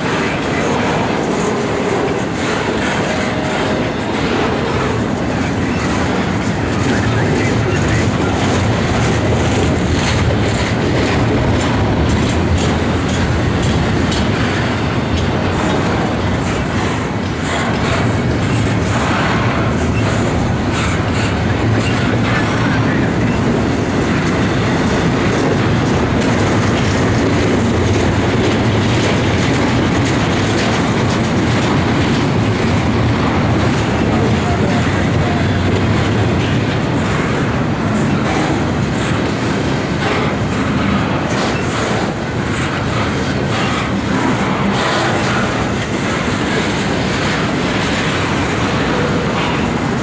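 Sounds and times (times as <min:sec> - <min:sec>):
freight train rumbling past: 0:00.0 - 0:50.0
wheels clacking over rail joints: 0:00.0 - 0:50.0.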